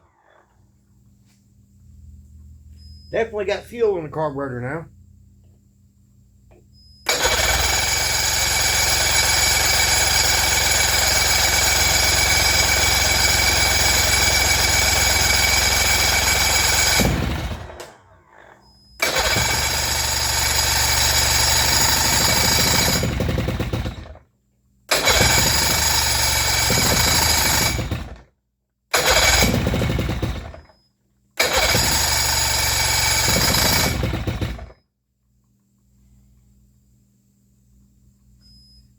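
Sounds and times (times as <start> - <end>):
outboard motor starting: 7.1 - 24.2, 24.9 - 28.3, 28.9 - 30.7, 31.4 - 34.8.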